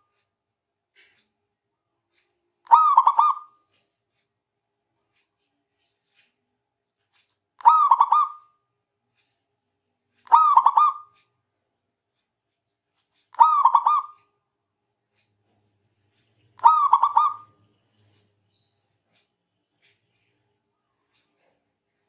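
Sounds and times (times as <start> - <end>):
dove cooing: 2.7 - 3.5, 10.3 - 11.1, 13.4 - 14.2, 16.6 - 17.5.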